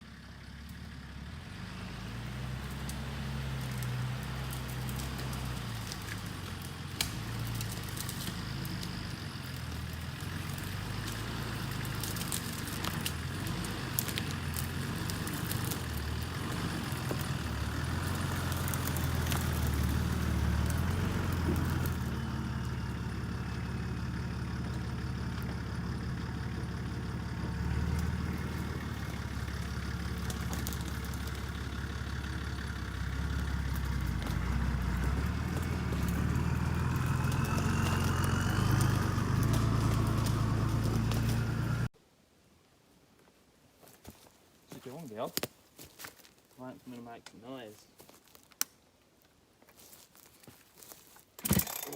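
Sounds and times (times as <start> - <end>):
vehicle engine running: 0.0 - 42.0.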